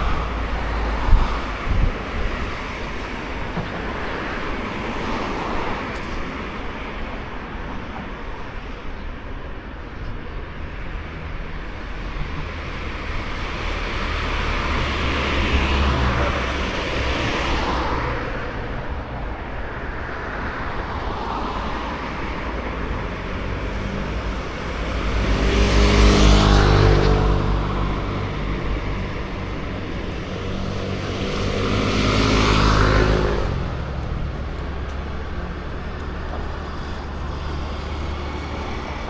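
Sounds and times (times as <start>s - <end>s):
cars passing by: 0.0s - 39.0s
steady traffic hum: 0.0s - 39.0s
car engine passing: 23.1s - 39.0s.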